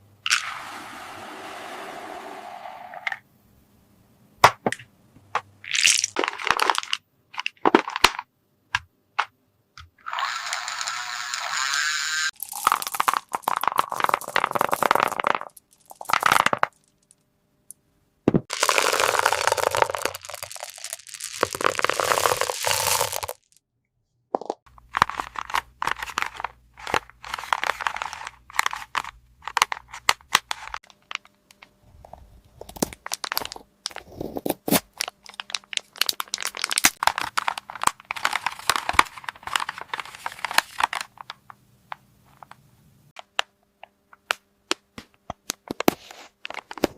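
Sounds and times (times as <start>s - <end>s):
plastic wrap crinkling: 18.5s - 23.6s, 24.7s - 31.4s, 32.1s - 41.4s.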